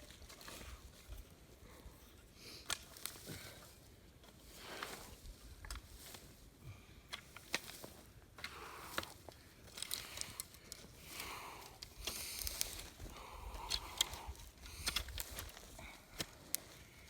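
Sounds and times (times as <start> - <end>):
leaves and twigs raked: 0.0 - 17.0
sticks snapping: 2.6 - 3.4, 7.1 - 16.8.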